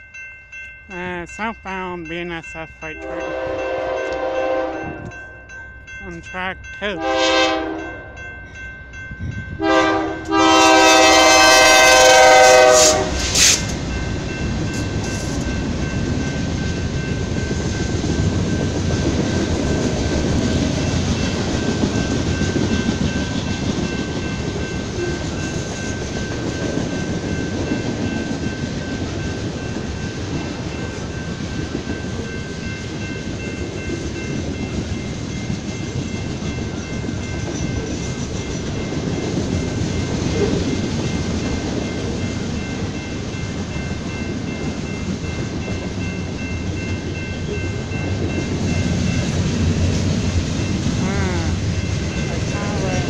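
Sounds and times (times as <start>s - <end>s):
locomotive air horn blasts: 3.0s - 5.1s, 7.0s - 8.0s, 9.6s - 13.6s.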